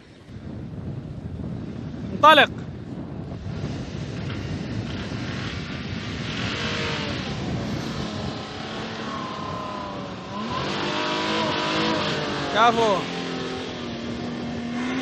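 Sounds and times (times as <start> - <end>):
constant rushing noise: 0.0 - 15.0
off-road vehicle engine revving: 3.4 - 15.0.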